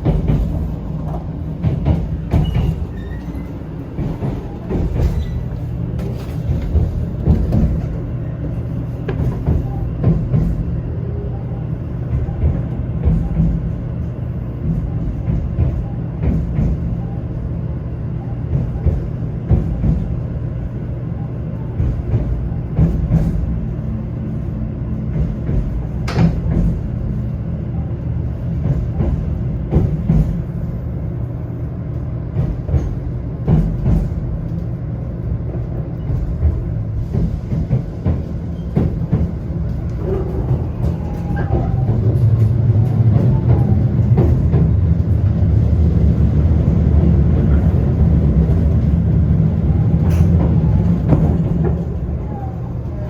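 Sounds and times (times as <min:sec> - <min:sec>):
train clicks: 0:00.0 - 0:10.7, 0:12.0 - 0:17.2, 0:18.4 - 0:20.3, 0:21.8 - 0:23.8, 0:25.1 - 0:27.3, 0:28.3 - 0:30.5, 0:31.9 - 0:53.0
train running rumble: 0:00.0 - 0:53.0.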